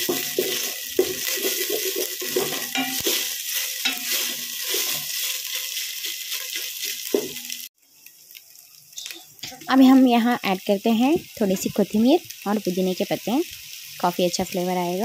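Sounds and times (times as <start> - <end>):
wooden spatula scraping pan: 0.0 - 5.8
vegetables sizzling in oil: 0.0 - 15.0.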